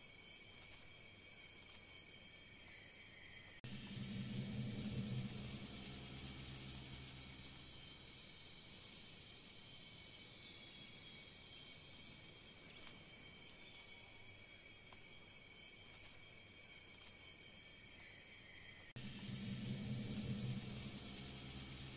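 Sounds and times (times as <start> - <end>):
crickets trilling: 0.0 - 21.9
low hum: 3.6 - 8.4, 19.0 - 21.9.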